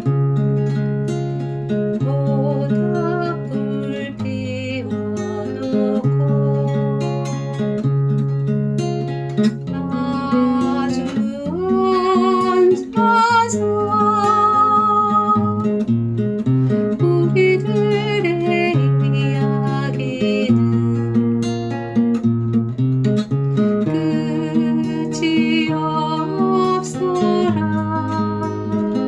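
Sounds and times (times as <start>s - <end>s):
acoustic guitar strumming: 0.0s - 29.0s
wavering melody with vibrato: 23.8s - 29.0s.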